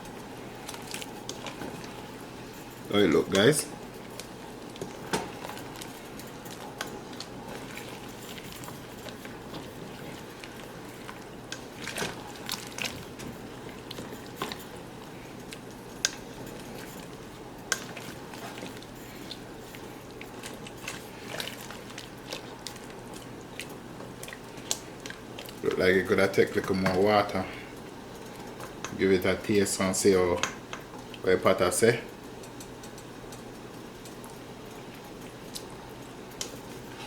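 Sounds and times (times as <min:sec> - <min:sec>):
soup simmering in a pot: 0:00.0 - 0:31.3, 0:32.1 - 0:37.0
spoon stirring soup: 0:00.2 - 0:25.6.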